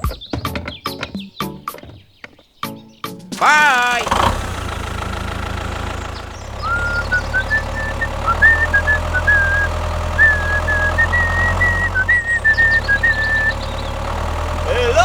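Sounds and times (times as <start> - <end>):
small engine idling: 3.4 - 15.0.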